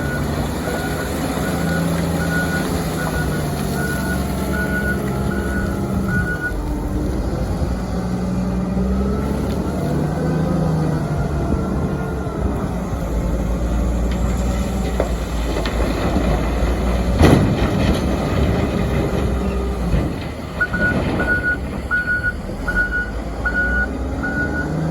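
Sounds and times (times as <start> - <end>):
heavy diesel engine under load: 0.0 - 24.9
backup alarm beeping: 1.5 - 6.6, 20.6 - 24.8
coal crashing into trailer: 15.0 - 21.8.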